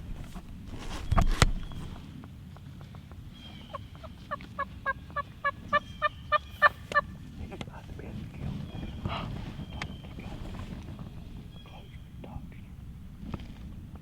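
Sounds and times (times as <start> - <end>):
turkey yelps: 3.4 - 7.1.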